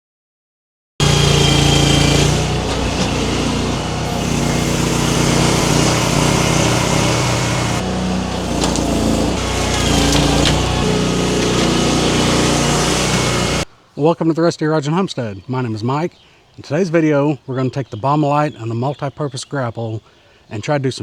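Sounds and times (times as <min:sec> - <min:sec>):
small engine running: 0:01.0 - 0:13.7.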